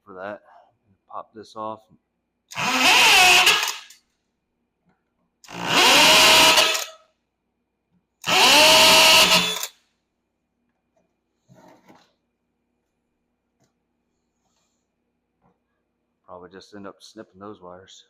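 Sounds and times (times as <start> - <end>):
power drill drilling rivets: 2.5 - 4.0, 5.5 - 7.0, 8.2 - 9.8.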